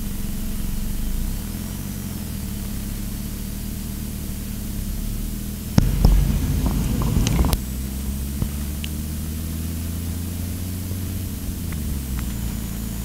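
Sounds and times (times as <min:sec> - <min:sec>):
vehicle engine drone: 0:00.0 - 0:13.0
road and wind noise: 0:05.4 - 0:13.0.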